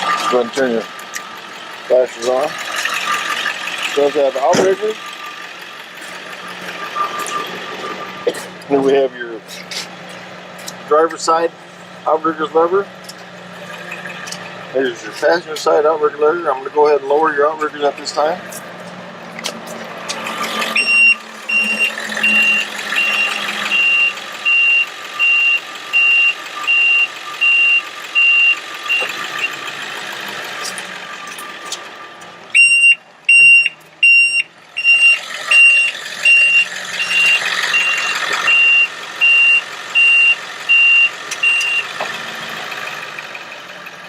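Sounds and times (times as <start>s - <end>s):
truck engine humming: 0.0s - 44.0s
warning alarm beeping: 6.3s - 8.3s, 20.6s - 29.6s, 32.6s - 41.9s.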